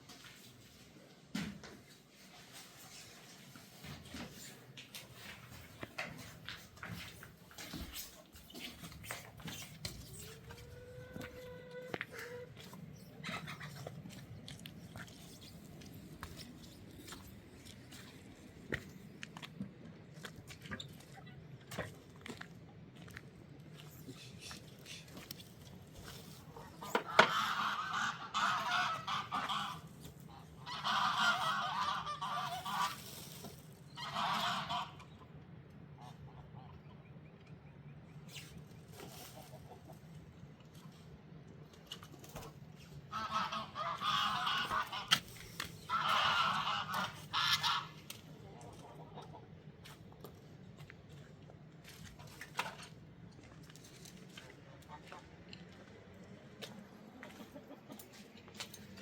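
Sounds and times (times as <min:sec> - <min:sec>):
farm fowl calling raspily: 0:10.3 - 0:13.8, 0:26.5 - 0:33.0, 0:34.0 - 0:35.1, 0:43.0 - 0:49.5
goose honking: 0:26.6 - 0:33.0, 0:34.0 - 0:35.1, 0:43.1 - 0:45.2, 0:45.8 - 0:49.2.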